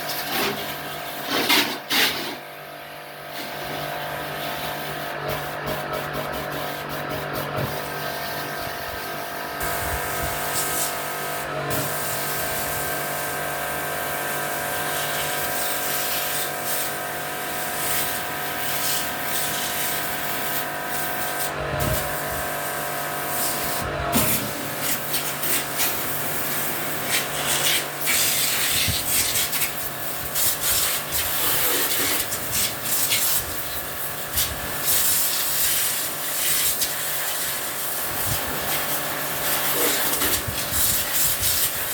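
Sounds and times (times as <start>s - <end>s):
machine hum: 5.2s - 30.3s
rubbing and spraying noise: 23.4s - 41.9s.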